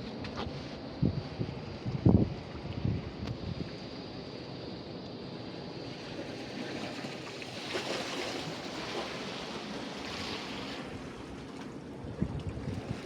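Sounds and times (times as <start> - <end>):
wind rumbling on microphone: 0.0 - 4.0, 8.5 - 13.0.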